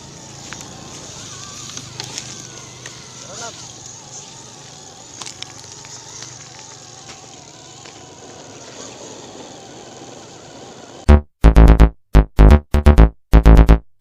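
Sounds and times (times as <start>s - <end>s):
rc car motor whining: 0.0s - 11.1s.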